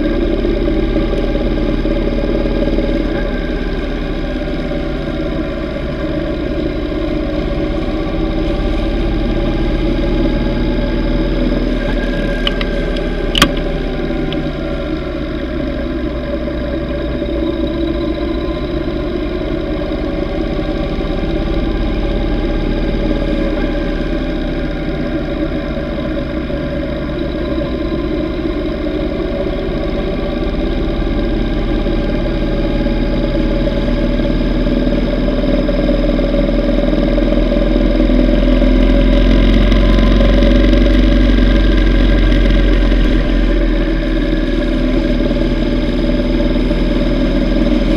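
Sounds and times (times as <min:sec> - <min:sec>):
motorcycle engine running: 0:00.0 - 0:47.9
sharp click: 0:13.3 - 0:13.7.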